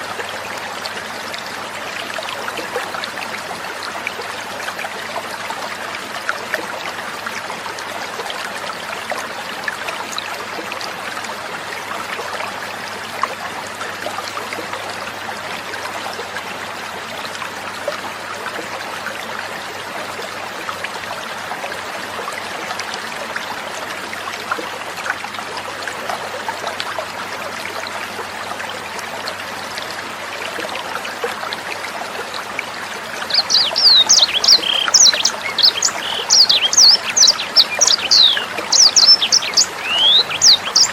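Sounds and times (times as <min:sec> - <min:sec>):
water trickling: 0:00.0 - 0:40.9
bird chirping: 0:33.2 - 0:40.9.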